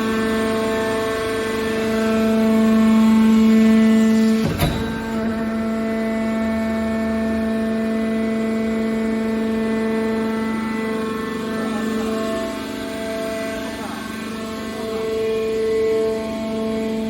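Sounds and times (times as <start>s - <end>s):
hydraulic baler humming: 0.3s - 16.5s
metal clank: 4.4s - 6.5s.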